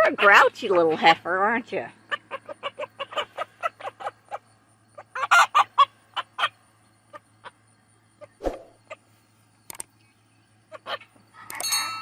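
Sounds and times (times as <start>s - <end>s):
chickens clucking: 2.0s - 9.1s, 10.6s - 11.6s.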